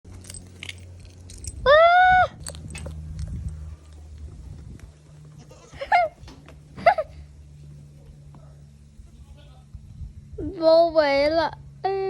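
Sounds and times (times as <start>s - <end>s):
young goat bleating: 5.4s - 6.2s.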